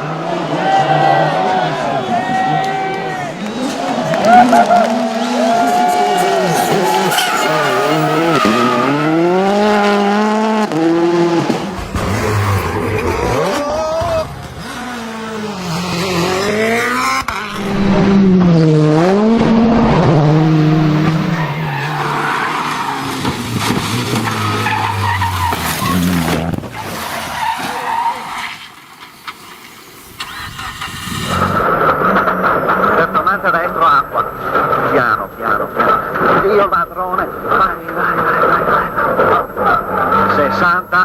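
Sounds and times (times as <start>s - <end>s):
rally car engines revving: 0.0s - 29.1s, 29.8s - 41.0s
tyre noise: 2.1s - 40.8s.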